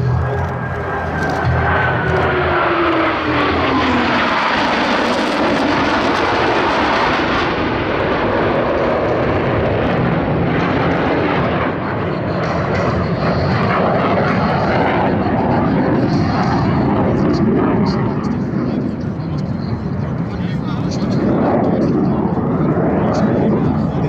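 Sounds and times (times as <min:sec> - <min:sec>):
falling jet whine: 0:00.0 - 0:18.7
jet roaring past: 0:00.0 - 0:24.0.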